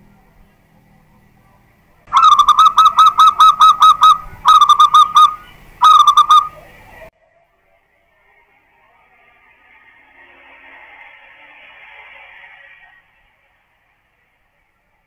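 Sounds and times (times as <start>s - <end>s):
dove cooing: 2.1s - 7.0s.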